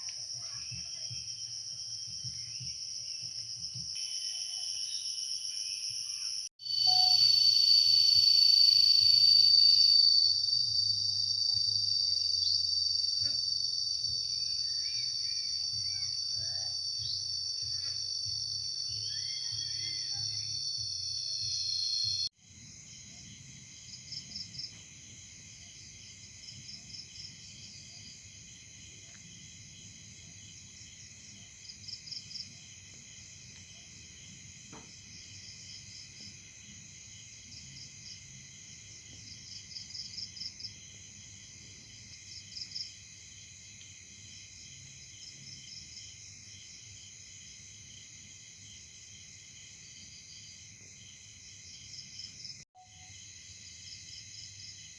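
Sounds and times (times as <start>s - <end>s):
pulsed insect trills: 0.0s - 22.3s
crickets and insects droning: 0.0s - 54.9s
loud high tonal sound: 6.6s - 10.8s.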